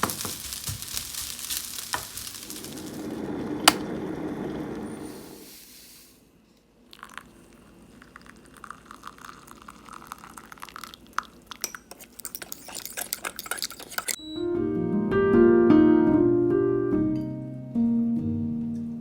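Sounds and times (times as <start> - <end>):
tableware clinking: 11.6 - 14.2
harp and piano music: 14.5 - 19.0.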